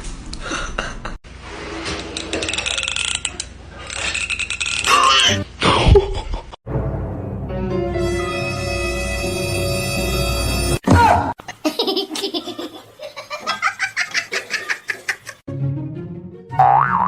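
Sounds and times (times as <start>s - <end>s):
eerie music: 6.7s - 10.8s
rhythmic high laughter: 11.5s - 15.4s
boing-like glide: 16.5s - 17.0s.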